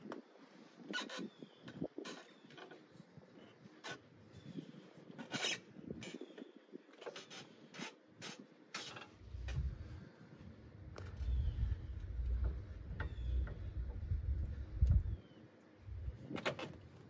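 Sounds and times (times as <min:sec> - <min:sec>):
mechanical clicks and scraping: 0:07.0 - 0:09.8
low steady rumble: 0:09.2 - 0:16.3.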